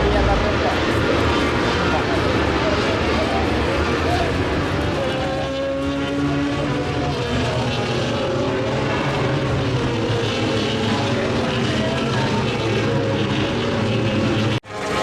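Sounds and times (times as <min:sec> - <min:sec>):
racing motorcycle engines revving high: 0:00.0 - 0:15.0.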